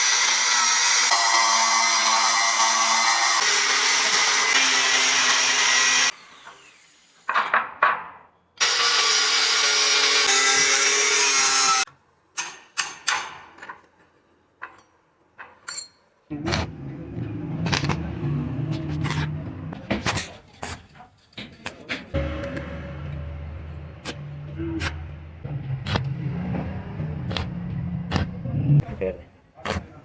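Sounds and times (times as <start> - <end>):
power tool on metal: 0.0 - 7.3, 8.6 - 11.9
low machine hum: 16.3 - 19.8, 22.2 - 25.8.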